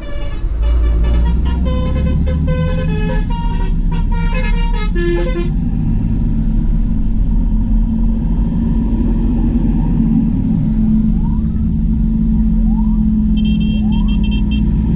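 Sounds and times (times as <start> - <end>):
musical horn playing a tune: 0.0 - 5.6
diesel tractor engines rumbling: 0.0 - 14.9.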